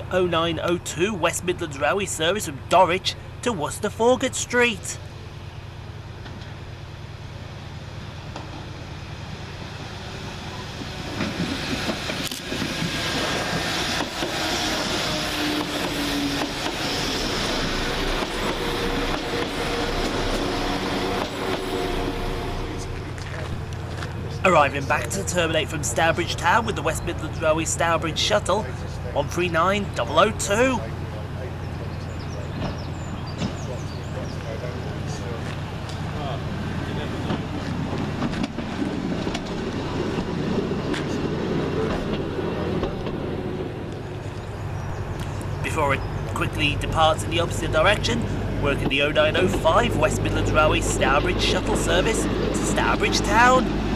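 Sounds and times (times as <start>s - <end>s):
railcar rumbling: 0.0s - 53.9s
train running: 0.0s - 53.9s
train wheels clicking: 11.1s - 22.0s.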